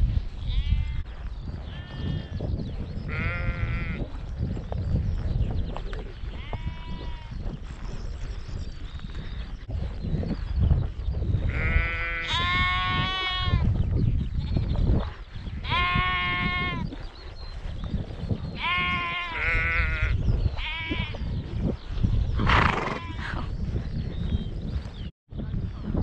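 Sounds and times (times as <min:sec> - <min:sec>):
sheep bleating: 0:03.1 - 0:04.1, 0:11.5 - 0:13.7, 0:15.6 - 0:16.9, 0:18.6 - 0:21.2.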